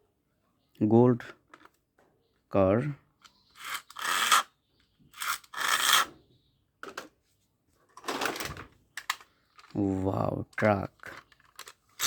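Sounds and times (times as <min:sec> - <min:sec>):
toy car scraping on rough surface: 0:03.5 - 0:04.5, 0:05.2 - 0:06.1.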